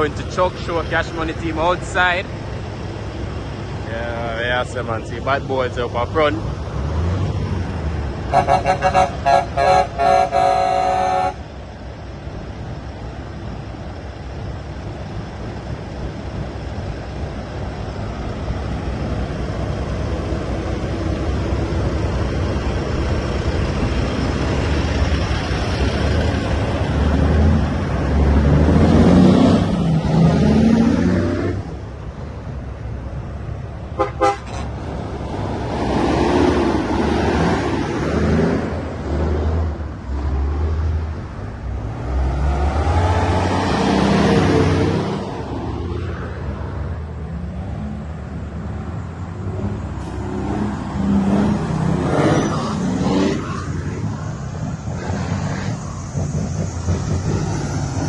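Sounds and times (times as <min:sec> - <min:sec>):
engines and traffic din: 0:00.0 - 0:58.0
truck horns: 0:08.2 - 0:11.6, 0:30.8 - 0:31.7, 0:33.9 - 0:34.8.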